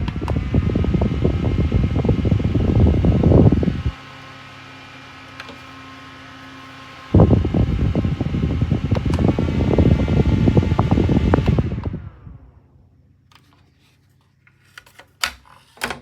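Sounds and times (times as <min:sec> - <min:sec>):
wind buffeting microphone: 0:00.0 - 0:04.0, 0:07.1 - 0:12.5
desk fan humming: 0:00.0 - 0:16.0.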